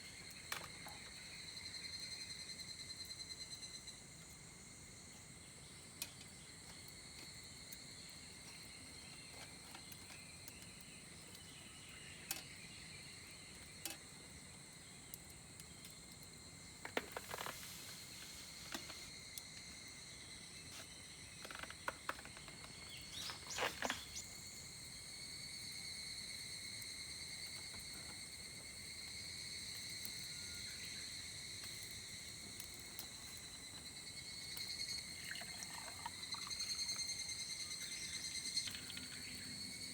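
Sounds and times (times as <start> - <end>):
insects singing: 16.6 - 39.9.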